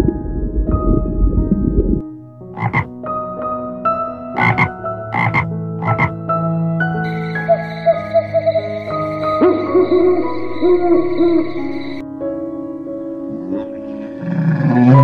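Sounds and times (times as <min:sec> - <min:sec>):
soft background music: 0:00.0 - 0:15.0
tree frog croaking: 0:02.5 - 0:02.9, 0:04.4 - 0:06.2.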